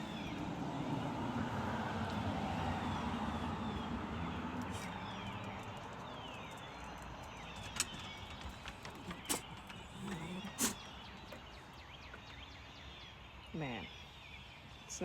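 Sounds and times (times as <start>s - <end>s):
songbirds chirping: 0.0s - 15.0s
sharp clicks: 4.6s - 11.4s.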